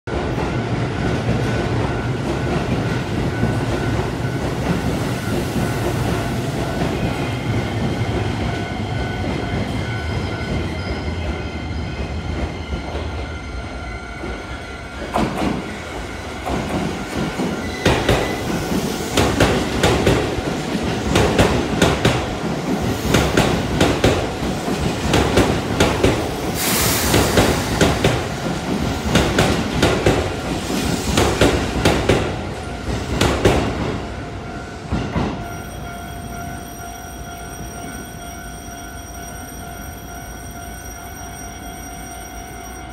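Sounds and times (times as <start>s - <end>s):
train rumble: 0.1s - 38.2s.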